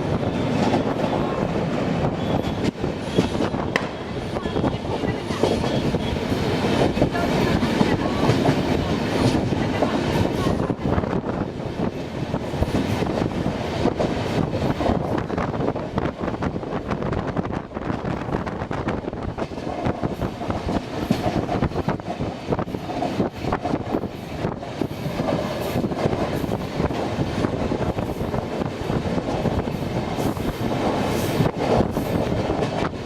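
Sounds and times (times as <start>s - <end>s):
train wheels clattering on rails: 0.0s - 33.0s.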